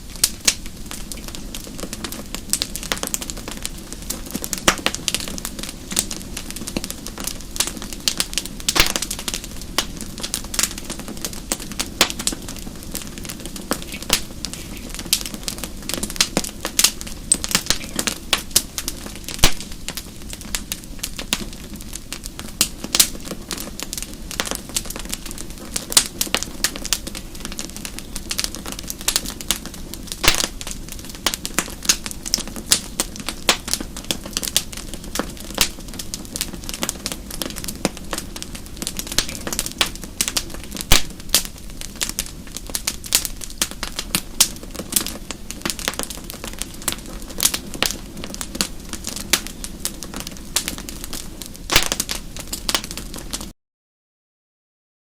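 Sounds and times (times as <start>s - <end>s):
logs crackling and popping: 0.0s - 53.5s
low rumble of flames: 0.0s - 53.5s.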